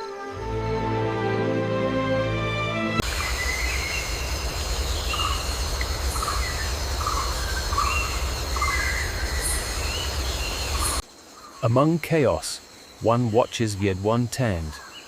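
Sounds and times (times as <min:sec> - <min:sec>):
high insect drone: 0:03.0 - 0:15.0.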